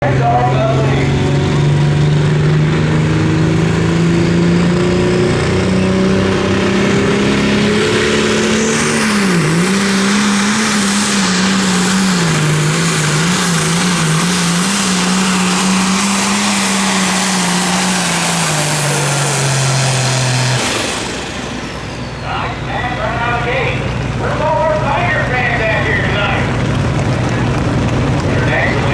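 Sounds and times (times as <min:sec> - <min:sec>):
tractor engine at full throttle: 0:00.0 - 0:28.9.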